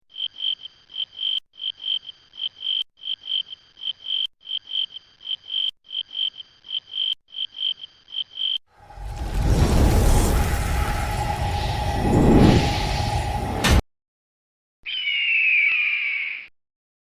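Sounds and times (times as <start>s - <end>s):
high animal chirping call: 14.9s - 16.5s.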